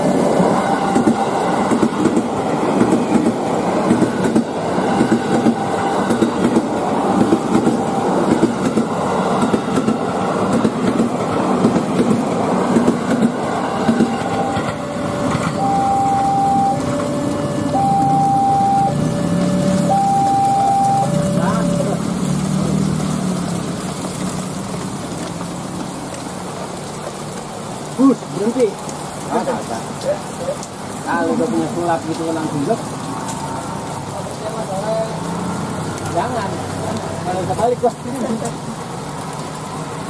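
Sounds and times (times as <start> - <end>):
train wheels clattering over rails: 0.0 - 15.6
two-tone crossing alarm: 0.5 - 1.6, 4.5 - 8.7, 13.6 - 22.1.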